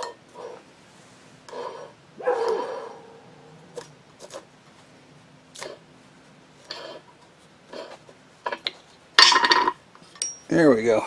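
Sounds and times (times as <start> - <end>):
hand tools tapping metal: 8.4 - 10.6.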